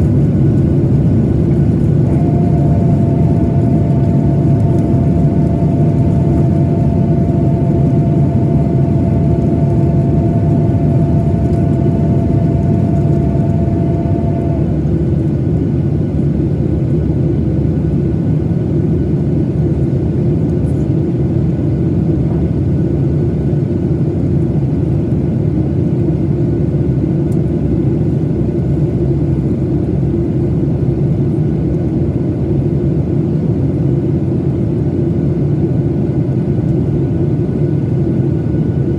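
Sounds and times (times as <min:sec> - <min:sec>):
whining engine tones: 0:00.0 - 0:15.5
aircraft cabin roar: 0:00.0 - 0:38.9.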